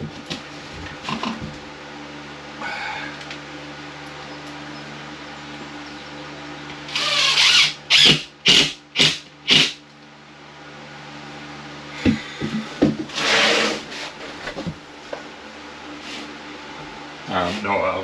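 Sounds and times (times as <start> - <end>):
steady low hum: 0.0 - 18.0
tool rasping through drywall: 13.1 - 13.9.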